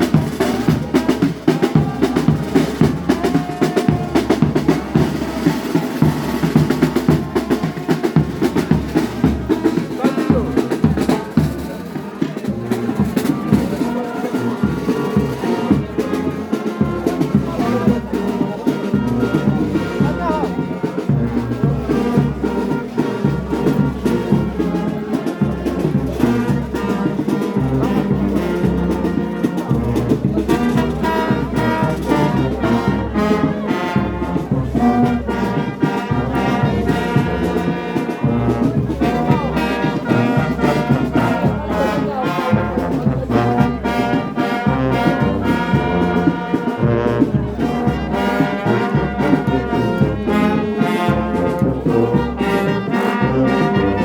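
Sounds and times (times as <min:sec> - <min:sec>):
brass band playing: 0:00.0 - 0:54.0.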